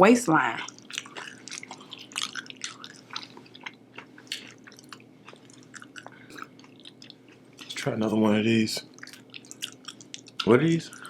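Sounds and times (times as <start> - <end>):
chewing with wet mouth smacks: 0.5 - 11.0.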